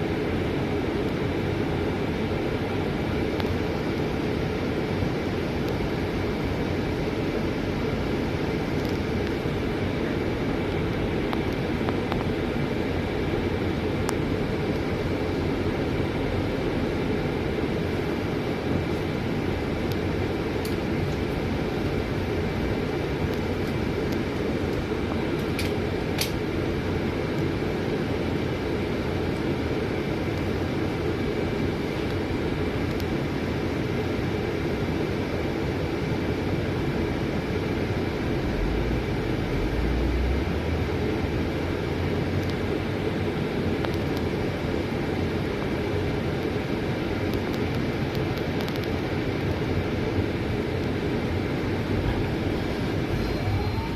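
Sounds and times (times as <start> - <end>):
bus engine and road rumble: 0.0 - 53.9
thin high whine: 51.9 - 53.9.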